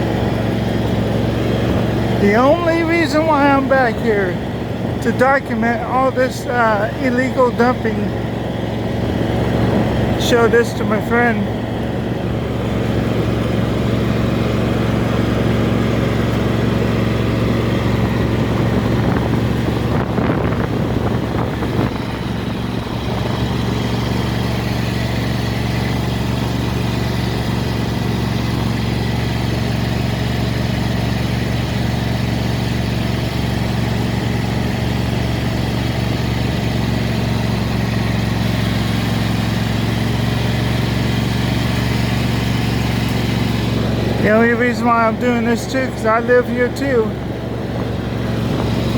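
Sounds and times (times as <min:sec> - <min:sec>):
low engine drone: 0:00.0 - 0:48.9.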